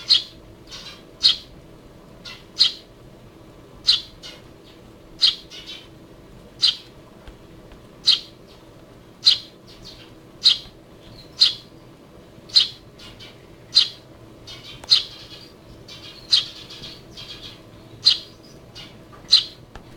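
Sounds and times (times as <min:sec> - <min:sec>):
sparrow chirping: 0:00.0 - 0:01.5, 0:02.2 - 0:02.9, 0:03.8 - 0:05.9, 0:06.6 - 0:06.9, 0:08.0 - 0:08.6, 0:09.2 - 0:11.8, 0:12.5 - 0:19.6.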